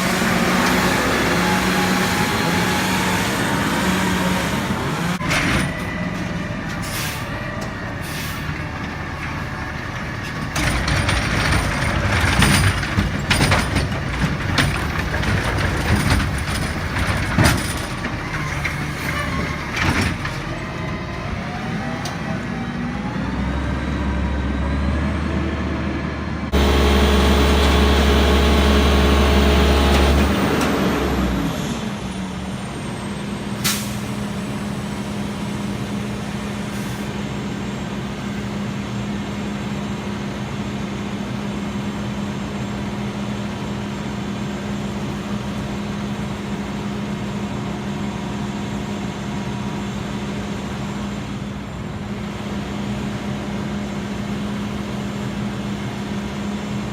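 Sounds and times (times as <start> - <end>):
garbage truck engine running: 0.0 - 56.9
air hiss release: 33.6 - 34.4.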